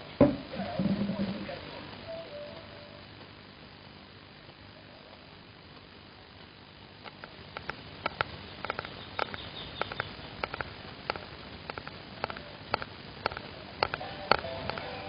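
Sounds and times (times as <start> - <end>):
faint steady hiss: 0.0 - 15.0
light sharp clicks and taps: 5.8 - 14.9.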